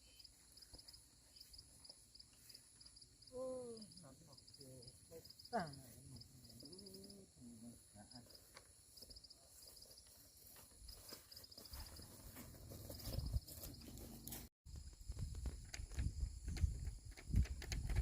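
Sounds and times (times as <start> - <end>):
insects chirping in trills: 0.0 - 13.9
soft low thuds and scuffs: 9.0 - 14.5.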